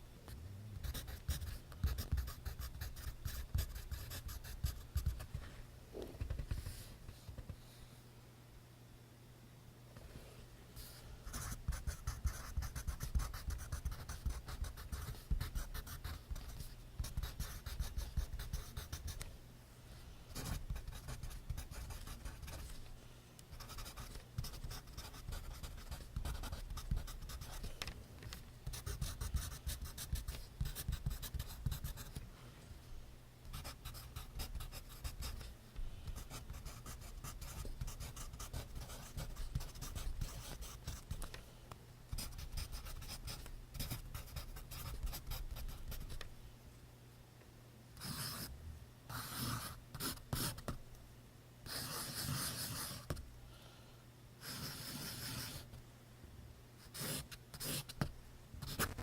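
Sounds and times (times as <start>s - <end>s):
pencil scratching on paper: 0.8s - 5.2s, 11.3s - 19.2s, 20.4s - 22.8s, 23.6s - 27.7s, 28.7s - 32.2s, 33.5s - 35.5s, 36.1s - 41.1s, 42.2s - 46.1s, 48.0s - 48.5s, 49.1s - 50.7s, 51.7s - 53.2s, 54.4s - 55.7s, 56.8s - 58.0s.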